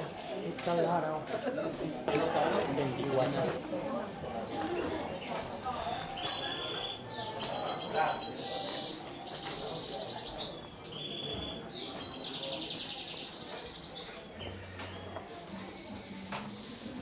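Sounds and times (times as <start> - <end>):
murmur of voices: 0.0 - 17.0
songbird singing: 4.4 - 17.0.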